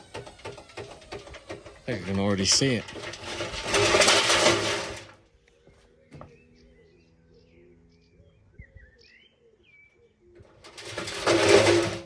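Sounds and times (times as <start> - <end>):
birds chirping faintly: 5.2 - 10.6.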